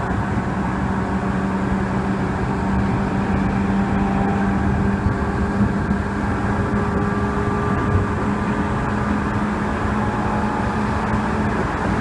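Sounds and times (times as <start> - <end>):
train hum: 0.0 - 12.0.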